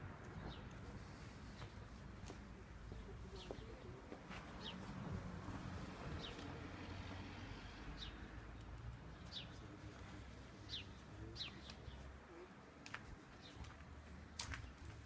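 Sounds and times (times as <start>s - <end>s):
small birds chirping: 8.0s - 12.5s.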